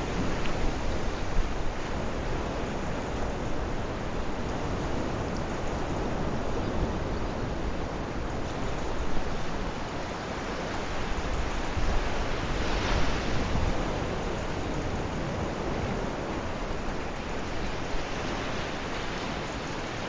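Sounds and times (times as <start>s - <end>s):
sea waves washing ashore: 0.0s - 20.0s
wind on microphone: 0.0s - 20.0s.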